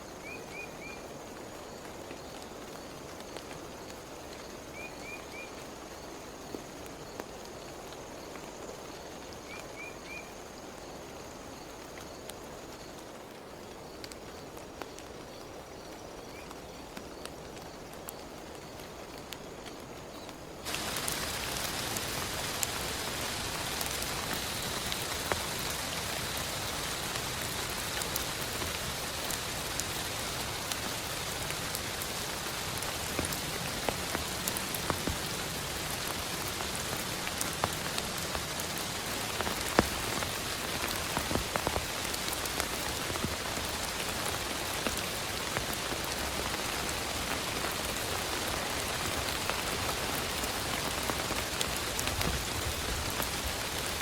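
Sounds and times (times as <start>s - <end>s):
heavy rain: 17.3s - 54.0s.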